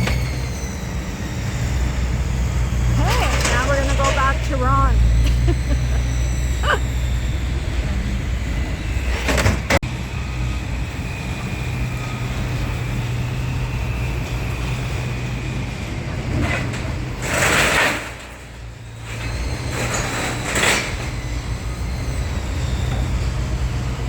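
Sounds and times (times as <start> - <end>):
vehicle engine humming: 0.0 - 17.5.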